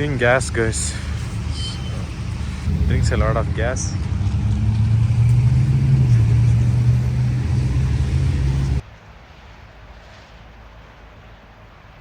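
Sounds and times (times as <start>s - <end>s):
vehicle engine droning: 0.0s - 8.8s.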